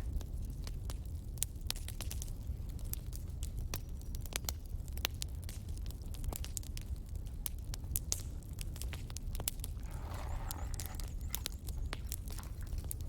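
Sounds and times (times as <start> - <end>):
low rumble of flames: 0.0 - 13.0
fire crackling and popping: 0.4 - 13.0
soft rustling: 9.8 - 13.0.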